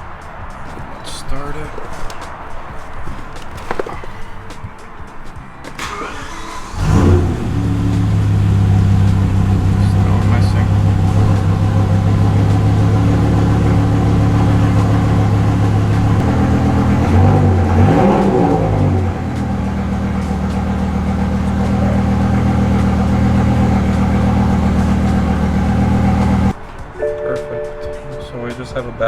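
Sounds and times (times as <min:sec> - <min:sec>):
engine idling with misfire: 0:05.8 - 0:26.5.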